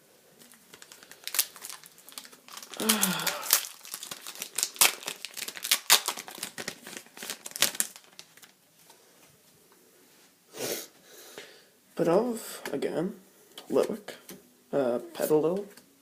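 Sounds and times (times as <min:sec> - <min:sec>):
foil wrapper crinkling and tearing: 0:00.4 - 0:08.6.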